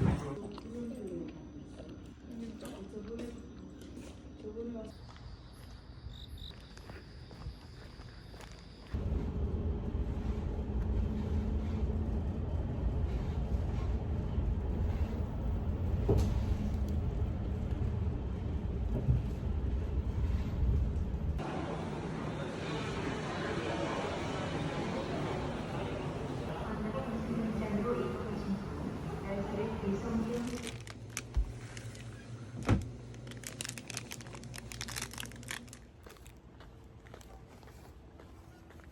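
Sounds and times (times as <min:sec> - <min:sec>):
steady low hum: 0:08.9 - 0:22.6.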